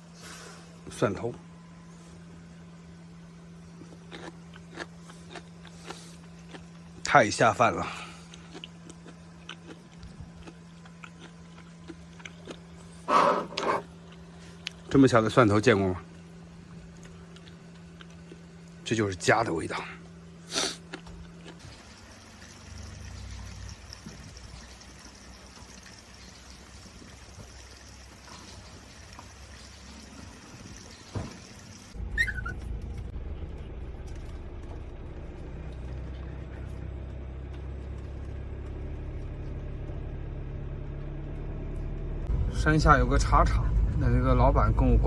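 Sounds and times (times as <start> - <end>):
vehicle engine and road rumble: 0.0 - 45.0
faint running water: 21.6 - 32.0.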